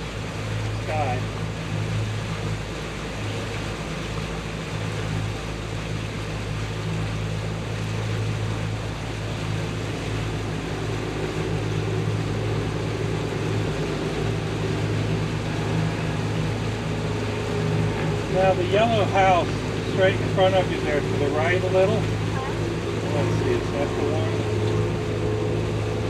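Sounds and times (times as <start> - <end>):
boat motor humming: 0.0 - 26.0
water rushing: 0.0 - 26.0
wind: 0.0 - 26.0.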